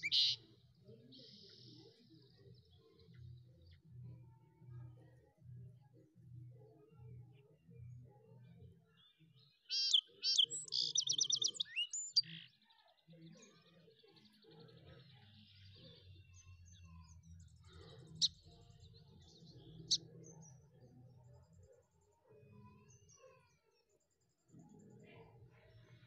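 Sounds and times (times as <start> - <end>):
bird chirping and trilling: 0.0 - 0.4, 9.7 - 12.5.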